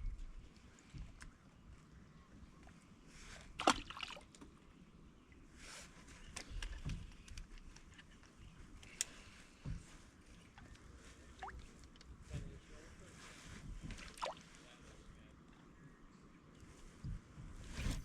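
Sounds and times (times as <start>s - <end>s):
water splashing against kayak: 3.4s - 4.3s.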